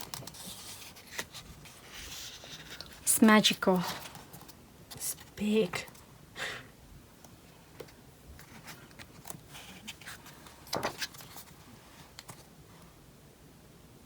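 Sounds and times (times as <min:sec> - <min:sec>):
paper pages rustling: 0:00.0 - 0:03.1, 0:07.8 - 0:12.5.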